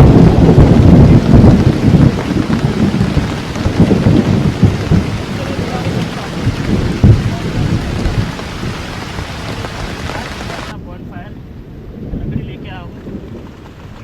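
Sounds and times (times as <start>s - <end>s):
deep low rumble: 0.0s - 10.7s
heavy rain pouring: 0.0s - 14.0s.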